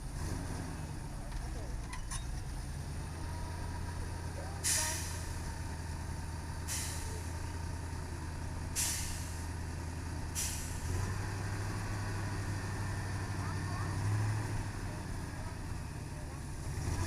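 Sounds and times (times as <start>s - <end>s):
truck engine running: 0.0s - 17.0s
air brakes hissing: 4.6s - 5.4s, 6.6s - 7.3s, 8.7s - 9.5s, 10.3s - 10.9s.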